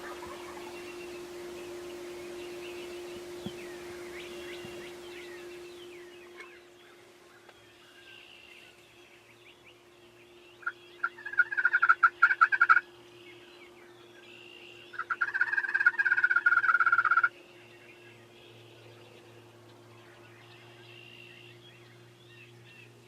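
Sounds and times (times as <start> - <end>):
turkey gobbling: 0.0 - 1.1, 10.6 - 12.9, 14.9 - 17.3.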